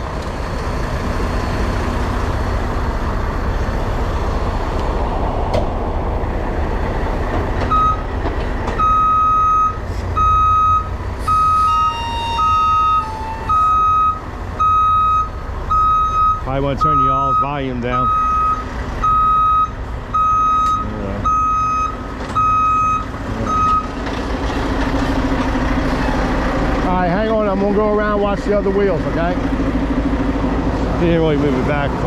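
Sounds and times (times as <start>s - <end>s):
diesel truck engine rumbling: 0.0s - 32.0s
reverse alarm beeps: 7.7s - 8.0s, 8.8s - 23.9s.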